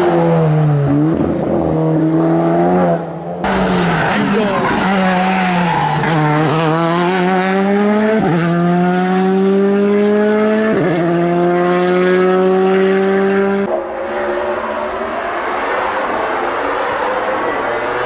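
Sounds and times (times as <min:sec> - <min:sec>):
race car engine at full throttle: 0:00.0 - 0:18.0
rough engine noise: 0:03.4 - 0:08.0.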